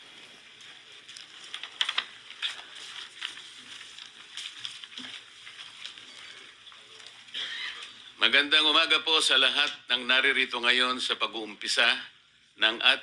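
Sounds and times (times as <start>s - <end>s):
faint rustling and crackling: 0.0s - 8.2s.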